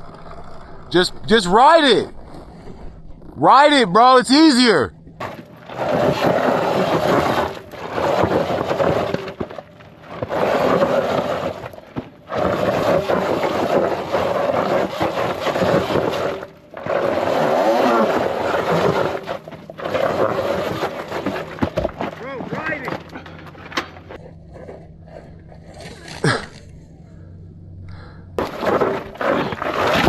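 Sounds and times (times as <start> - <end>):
scraping and crunching on dirt: 5.0 - 27.2, 28.4 - 30.0.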